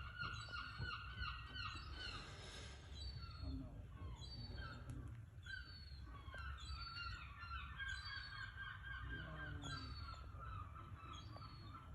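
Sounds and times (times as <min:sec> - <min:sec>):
birds chirping and squawking: 0:00.0 - 0:11.9.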